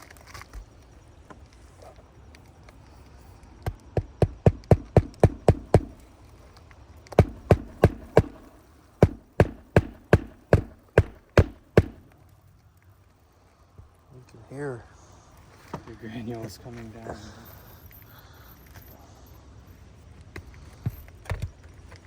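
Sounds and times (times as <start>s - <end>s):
hammer driving nails into shingles: 3.6s - 6.1s, 7.1s - 12.1s.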